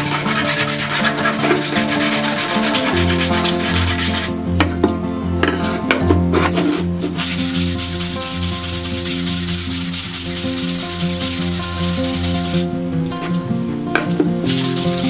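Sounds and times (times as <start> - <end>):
sandpaper scratching wood: 0.0 - 4.3, 7.1 - 12.7, 14.5 - 15.0.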